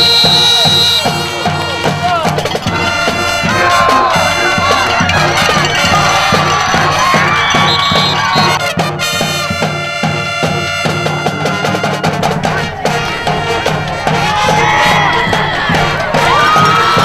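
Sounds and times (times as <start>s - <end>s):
music with steady beat: 0.0s - 17.0s
sustained pitched notes: 0.8s - 8.4s, 12.0s - 17.0s.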